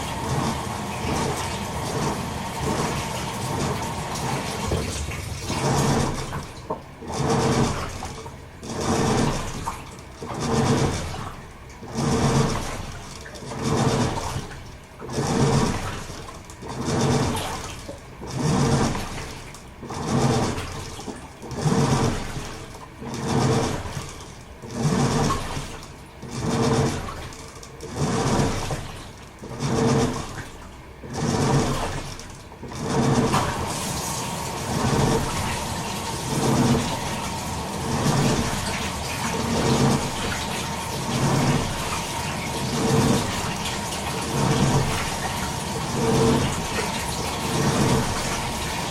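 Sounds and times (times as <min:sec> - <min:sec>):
washing machine sloshing water: 0:00.0 - 0:48.9
water running into tub: 0:00.0 - 0:48.9.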